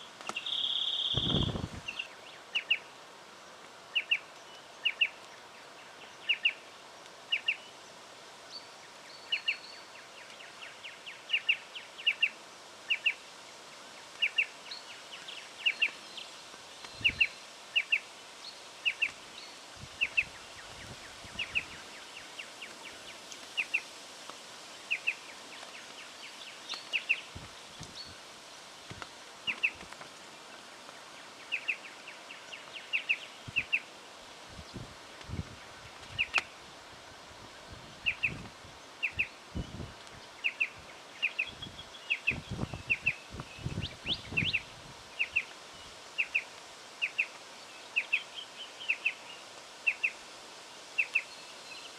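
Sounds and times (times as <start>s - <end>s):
bird calling sharp chips: 0.2s - 1.7s.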